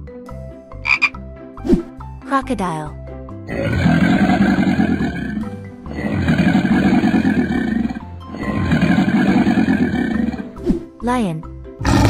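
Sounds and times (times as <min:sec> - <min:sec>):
background music: 0:00.0 - 0:12.0
rough animal roars: 0:03.5 - 0:10.6, 0:11.8 - 0:12.0.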